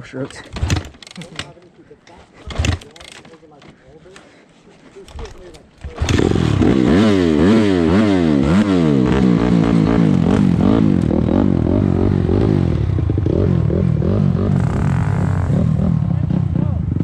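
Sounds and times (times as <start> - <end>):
dirt bike engine revving: 0.4 - 1.5, 2.4 - 3.2, 5.8 - 17.0.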